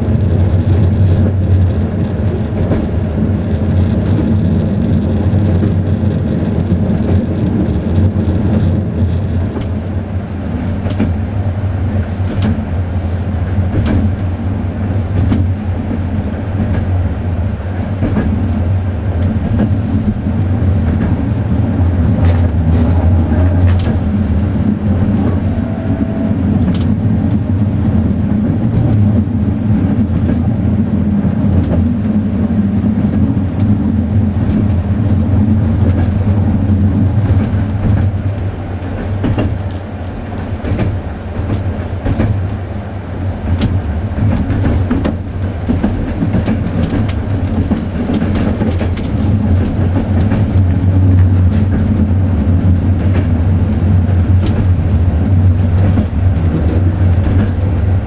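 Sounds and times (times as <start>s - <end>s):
train wheels rumbling: 0.0s - 58.0s.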